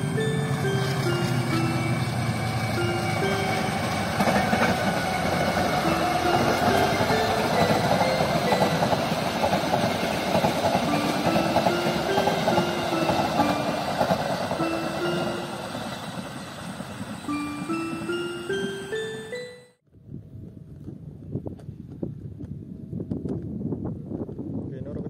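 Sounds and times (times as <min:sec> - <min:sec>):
train wheels rumbling on rails: 0:00.0 - 0:19.5
chiming melody: 0:00.0 - 0:19.8.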